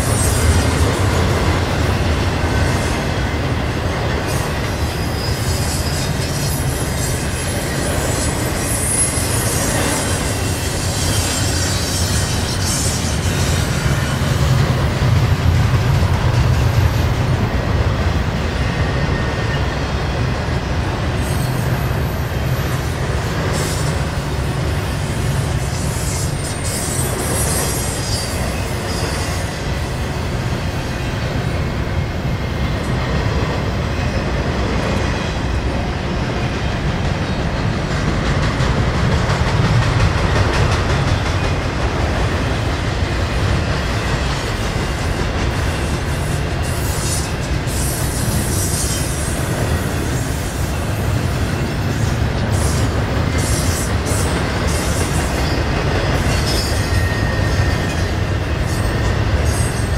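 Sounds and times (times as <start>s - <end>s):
freight train wheels rumbling: 0.0s - 59.9s
high wheel squeals: 4.7s - 14.4s, 25.4s - 29.7s, 51.6s - 59.9s.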